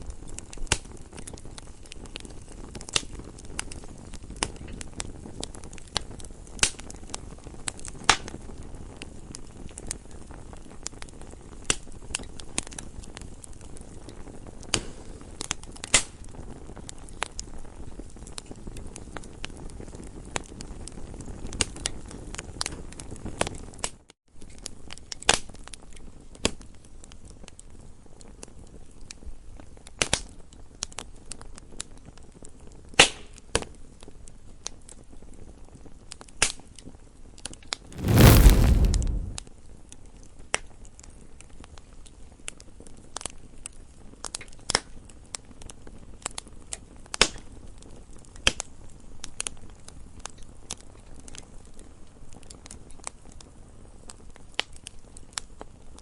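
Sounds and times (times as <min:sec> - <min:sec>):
campfire crackling and popping: 0:37.9 - 0:39.4.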